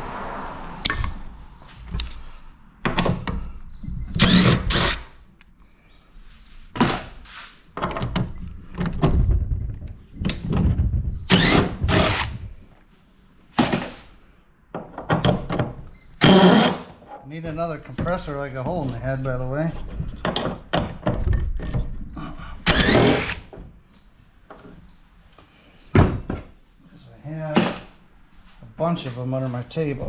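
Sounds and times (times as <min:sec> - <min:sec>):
power drill running: 0:04.2 - 0:05.2, 0:11.3 - 0:12.5, 0:22.7 - 0:23.5.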